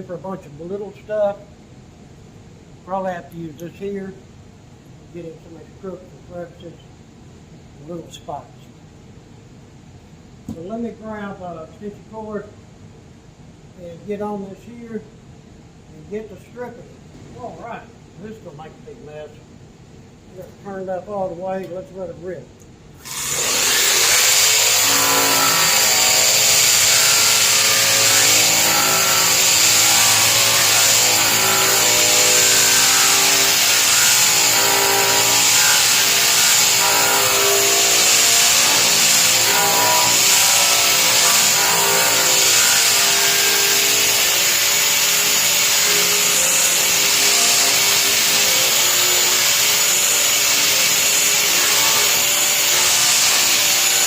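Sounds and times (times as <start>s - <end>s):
electric sander grinding metal: 23.1s - 54.0s.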